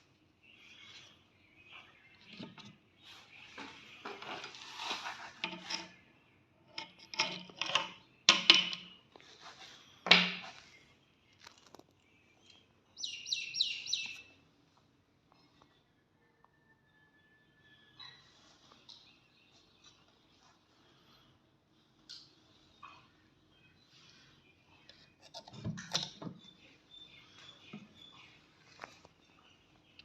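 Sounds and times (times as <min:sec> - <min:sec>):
bird chirping: 0:00.0 - 0:04.9, 0:09.6 - 0:14.4, 0:22.4 - 0:30.0
metallic clicks and scrapes: 0:03.6 - 0:06.0, 0:06.7 - 0:08.9.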